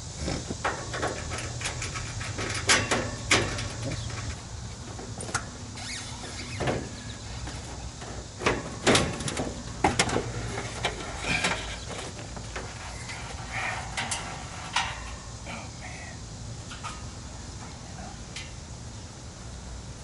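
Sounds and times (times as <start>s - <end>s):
steady low hum: 0.0s - 20.0s
metal knocks and clanks: 0.3s - 5.6s, 6.3s - 15.4s.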